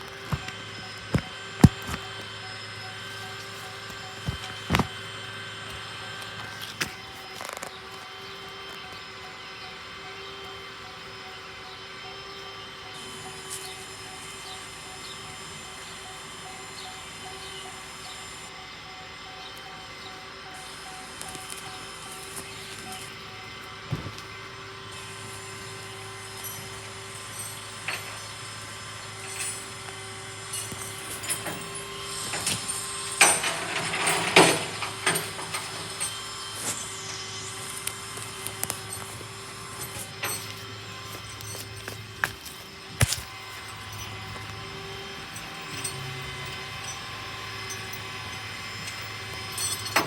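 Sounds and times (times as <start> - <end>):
vehicle engine idling: 33.0 - 50.0.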